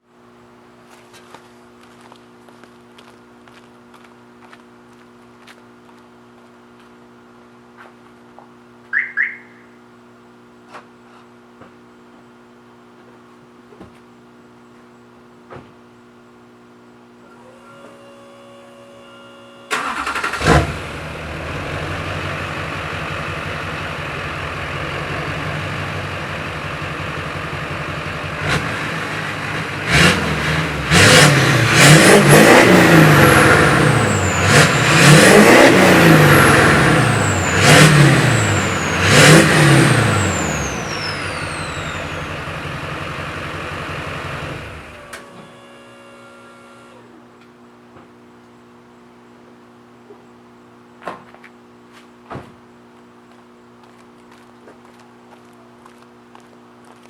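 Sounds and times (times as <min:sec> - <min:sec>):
turbo whistle: 0:08.9 - 0:09.8
diesel engine idling and revving: 0:19.7 - 0:46.0.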